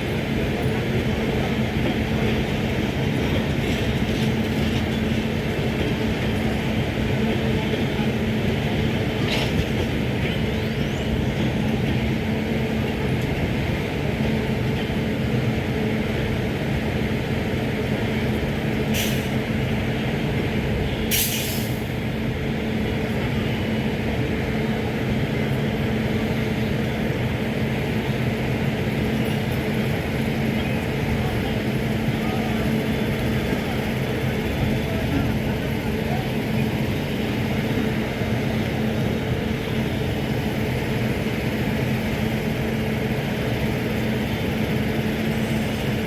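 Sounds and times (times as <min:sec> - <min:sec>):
electric locomotive humming: 0:00.0 - 0:46.0
air hissing: 0:21.1 - 0:21.8.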